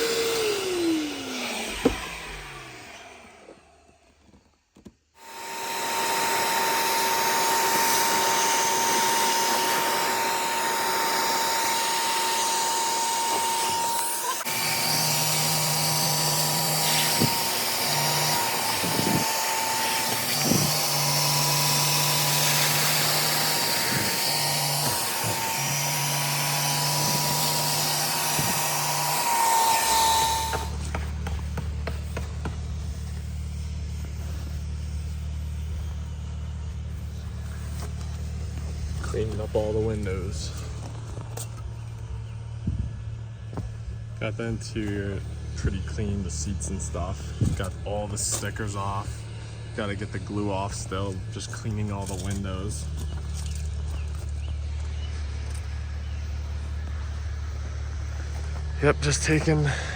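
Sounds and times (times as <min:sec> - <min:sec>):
vacuum cleaner running: 0:00.0 - 0:04.4, 0:05.2 - 0:42.4
low hum: 0:05.2 - 0:59.9.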